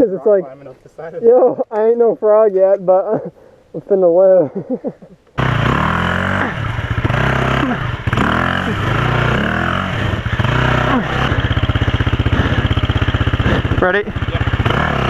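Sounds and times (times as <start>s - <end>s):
motorcycle engine revving and idling: 5.4s - 15.0s.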